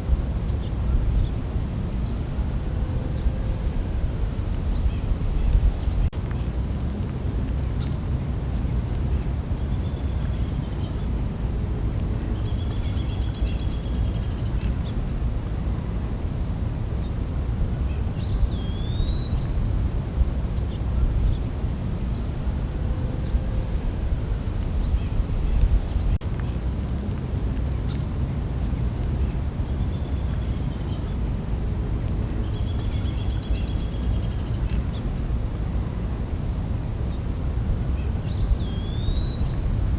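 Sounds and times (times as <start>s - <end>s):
steady low rumble: 0.0s - 6.8s, 19.2s - 26.9s
crickets chirping: 0.0s - 39.9s
high-pitched insect whine: 29.6s - 39.9s.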